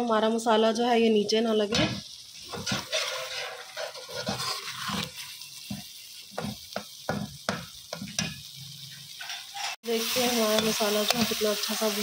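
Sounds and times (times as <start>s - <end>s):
sauce sizzling in oil: 0.0s - 12.0s
spoon scraping metal pan: 2.5s - 11.6s.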